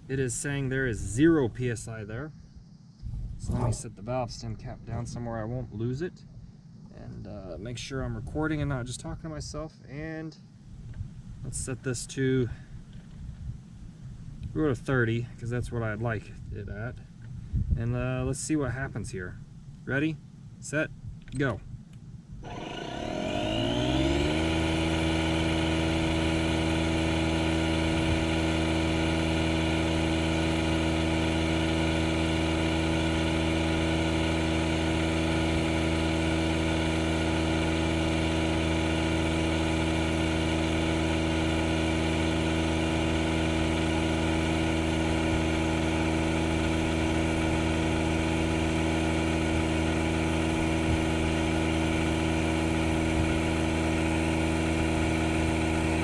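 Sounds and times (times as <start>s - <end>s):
air inflator running: 22.4s - 56.0s.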